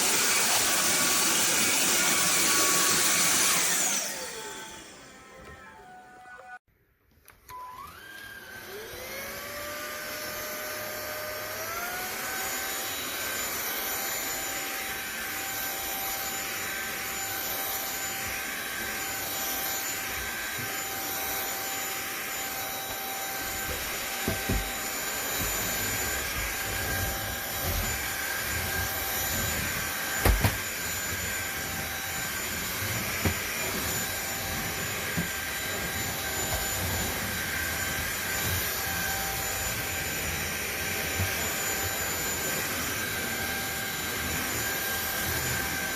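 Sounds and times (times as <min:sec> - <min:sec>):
vacuum motor whine: 0:00.0 - 0:06.6, 0:07.4 - 0:45.9.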